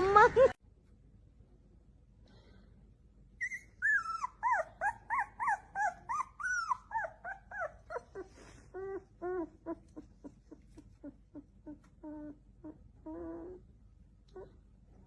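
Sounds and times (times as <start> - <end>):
dog crying: 3.4 - 13.6.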